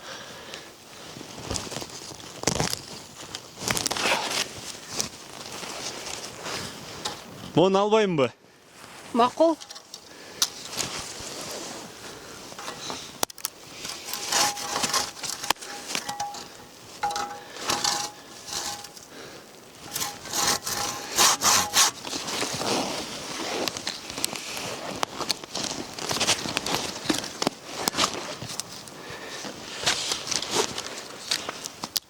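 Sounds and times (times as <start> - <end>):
hand saw cutting wood: 13.9 - 19.2, 19.8 - 22.5
saw blade ringing: 15.6 - 19.0.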